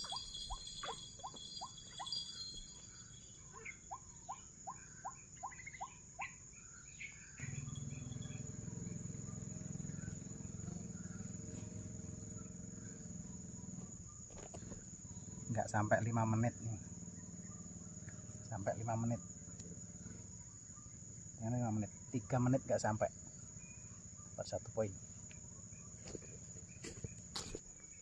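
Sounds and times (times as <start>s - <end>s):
waterhen calls: 0.0s - 6.4s
high insect drone: 0.0s - 28.0s.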